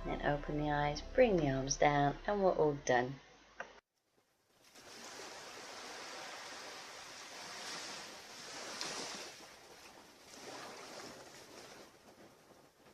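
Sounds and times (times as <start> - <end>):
sea waves washing onto beach: 4.6 - 12.9.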